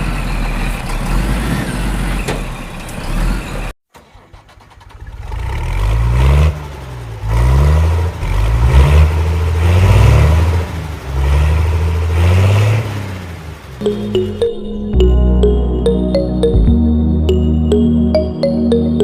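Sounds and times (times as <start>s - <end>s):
vehicle engine revving: 5.3s - 13.8s
music: 13.8s - 19.0s.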